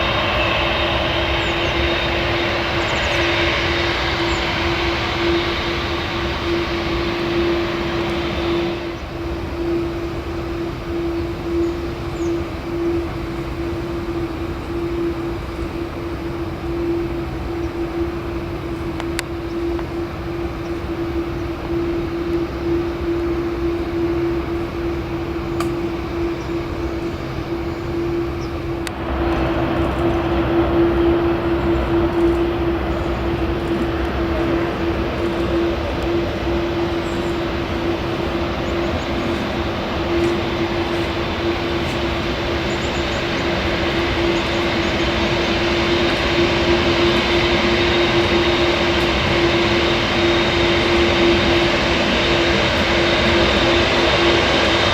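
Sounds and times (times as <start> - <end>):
rushing roar: 0.0 - 9.6, 28.7 - 54.9
jet engines humming: 0.0 - 54.9.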